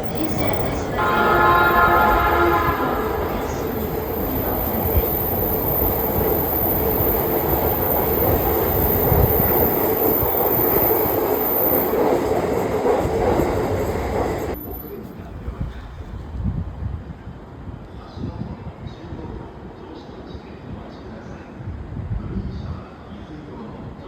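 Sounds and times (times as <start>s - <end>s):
train wheels rumbling on rails: 0.0s - 17.8s
constant train hum: 0.0s - 24.0s.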